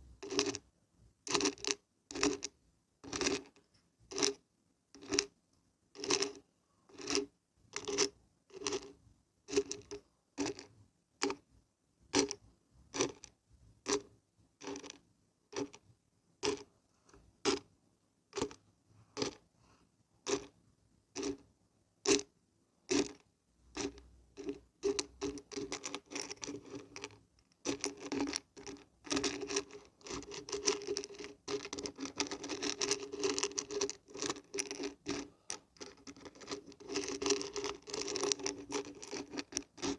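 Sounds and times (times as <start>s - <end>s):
dried beans rattling when shaken: 23.8s - 39.9s.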